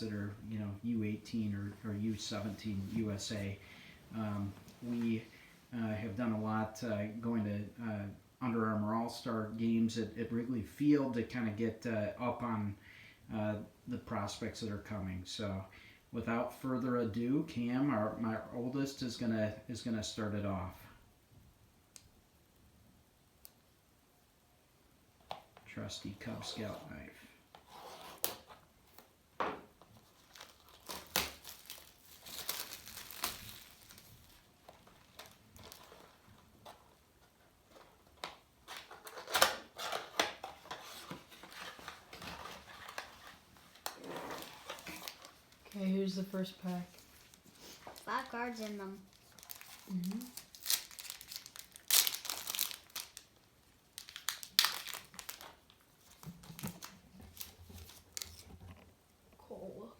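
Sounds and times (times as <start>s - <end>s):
sharp plastic crackles: 29.8s - 36.8s, 37.7s - 45.9s, 46.8s - 58.8s
plastic wrap crinkling and tearing: 29.9s - 36.8s, 37.7s - 46.0s, 46.6s - 58.5s.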